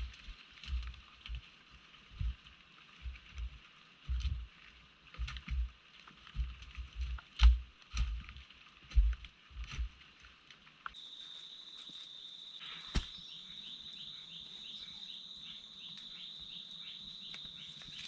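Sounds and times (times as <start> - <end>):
dull thumps: 12.9 - 13.2.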